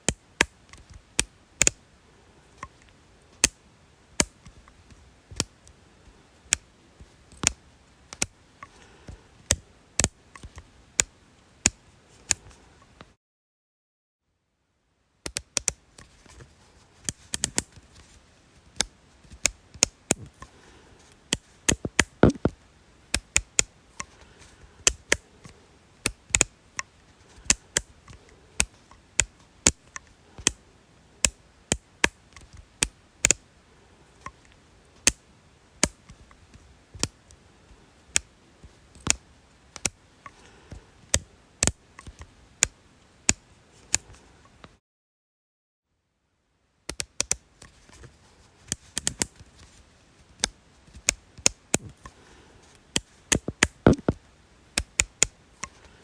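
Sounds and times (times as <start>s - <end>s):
sharp dry clicks: 7.3s - 8.9s, 15.3s - 16.1s, 21.3s - 30.6s, 31.2s - 33.4s, 38.9s - 40.5s, 46.9s - 47.7s, 52.9s - 55.9s.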